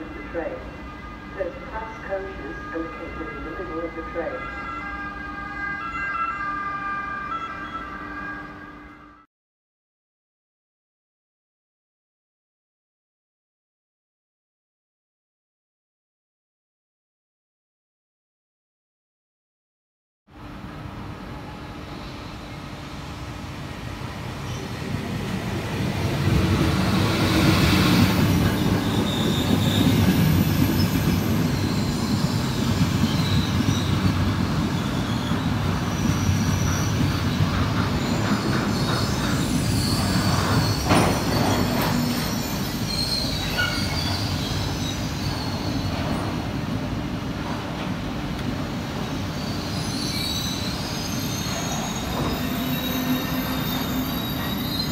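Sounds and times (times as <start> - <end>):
train coaches rumbling: 20.6 - 54.9
wheel and brake squeals: 27.3 - 34.0, 34.8 - 46.4, 49.3 - 54.9.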